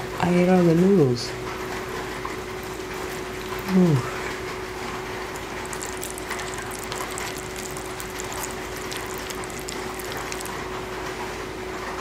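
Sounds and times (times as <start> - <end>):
steady hum: 1.9 - 11.8
rain patter: 2.6 - 11.4.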